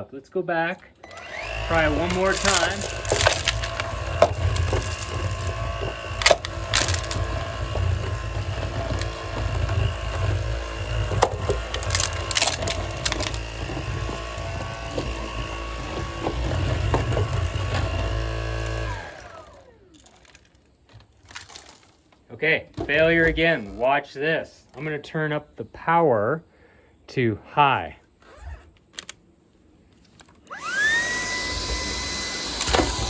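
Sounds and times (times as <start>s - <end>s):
stick vacuum running on carpet: 1.0s - 20.4s, 30.5s - 33.0s
pebbles clicking and rattling: 1.6s - 22.2s.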